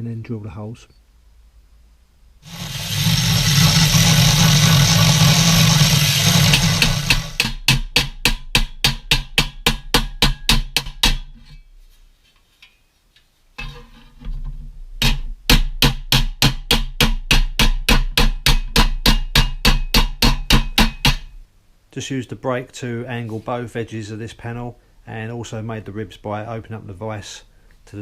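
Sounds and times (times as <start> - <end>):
low hum: 2.4 - 7.6
rapid knocking: 2.5 - 10.7.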